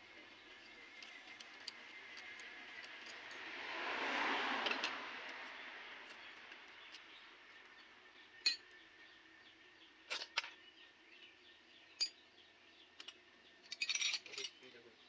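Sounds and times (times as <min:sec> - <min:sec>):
metallic clinks of tools: 0:13.0 - 0:14.7.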